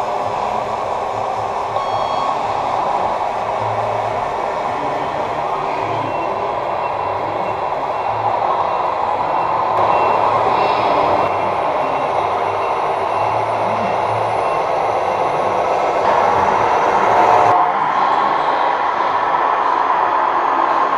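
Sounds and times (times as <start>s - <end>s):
truck engine rumble through speaker: 0.0s - 20.9s
faint short beeps: 1.8s - 2.5s.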